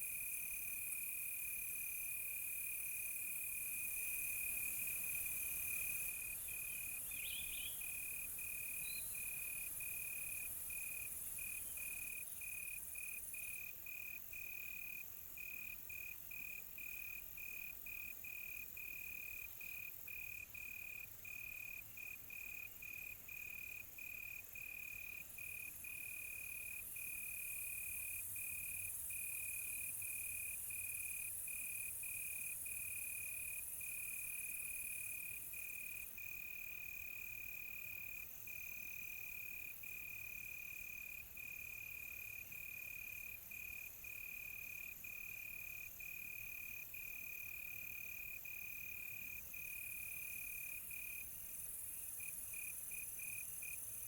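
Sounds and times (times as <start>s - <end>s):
crickets trilling: 2.5s - 13.7s.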